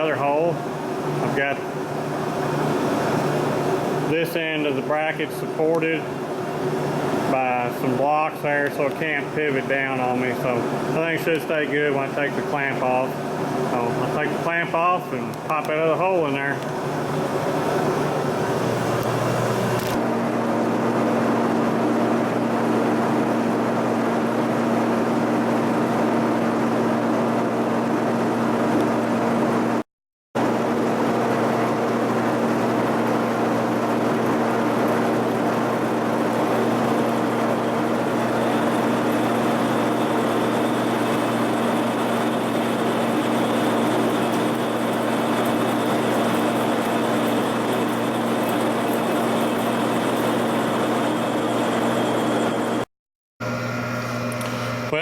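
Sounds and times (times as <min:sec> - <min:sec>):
drill drilling through metal: 0:37.7 - 0:52.8.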